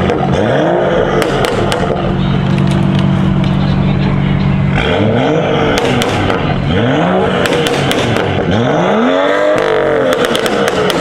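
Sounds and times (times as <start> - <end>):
car engine revving: 0.0 - 11.0
exhaust cracks: 0.0 - 11.0.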